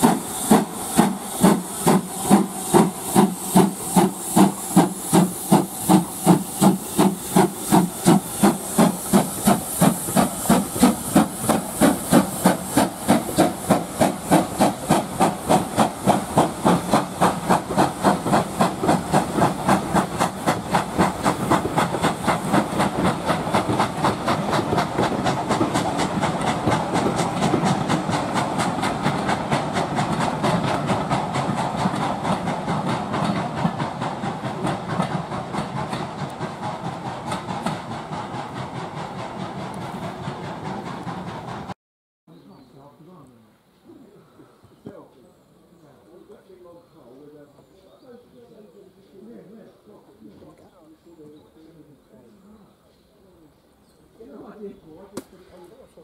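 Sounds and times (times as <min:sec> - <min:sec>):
steam hissing: 0:00.0 - 0:41.8
steam locomotive exhaust chuffing: 0:00.0 - 0:41.8.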